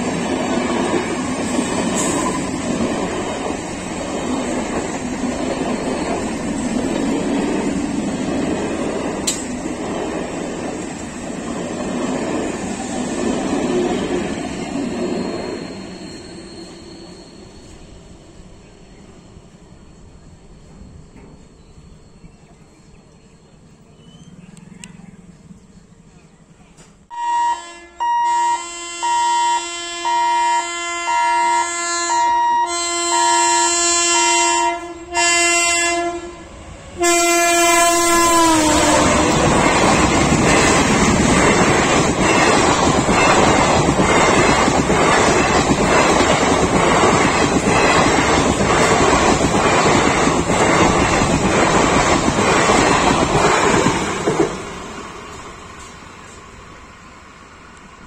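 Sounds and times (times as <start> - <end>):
train wheels rumbling on rail: 0.0 - 27.1, 33.1 - 58.0
train horn high note blasts: 27.1 - 39.6
train horn low note: 27.1 - 39.6.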